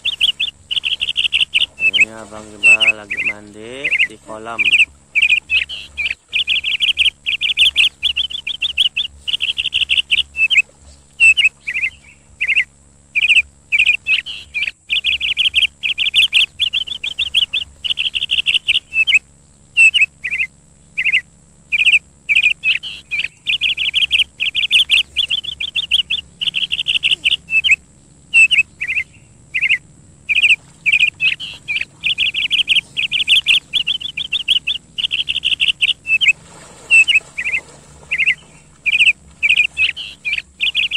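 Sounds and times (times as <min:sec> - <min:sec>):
bird chirping and trilling: 0:00.0 - 0:40.9.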